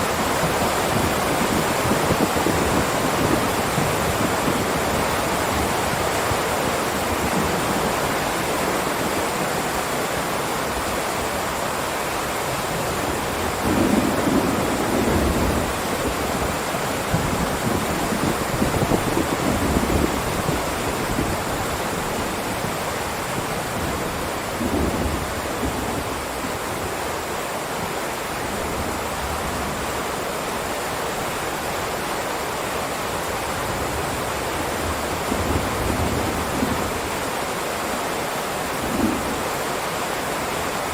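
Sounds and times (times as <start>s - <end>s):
heavy rain hiss: 0.0s - 40.9s.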